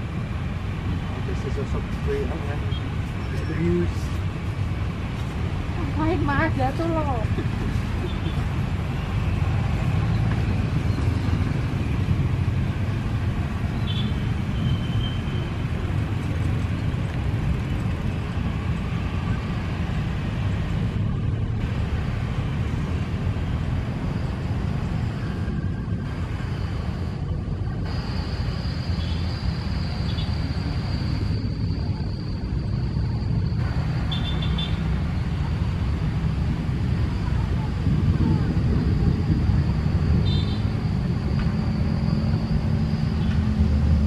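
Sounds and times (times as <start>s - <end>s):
strong wind buffeting microphone: 0.0s - 34.1s, 34.7s - 42.7s
faint high steady whine: 0.0s - 44.0s.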